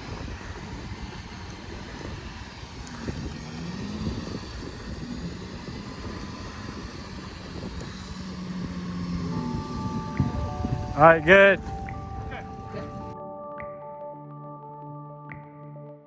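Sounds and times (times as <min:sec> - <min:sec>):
off-road vehicle engine: 0:00.0 - 0:13.2
low rumble: 0:02.2 - 0:13.2.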